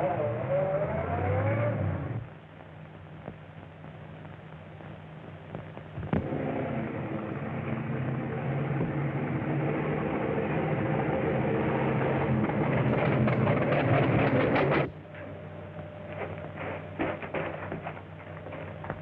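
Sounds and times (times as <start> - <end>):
engine running: 6.0 - 19.0.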